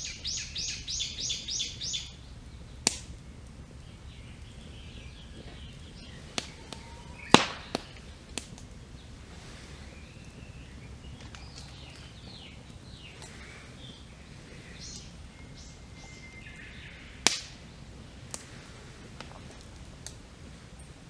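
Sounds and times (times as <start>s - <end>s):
birds chirping and whistling: 0.0s - 2.8s, 3.8s - 8.2s, 8.9s - 17.8s
campfire crackling and popping: 0.0s - 21.0s.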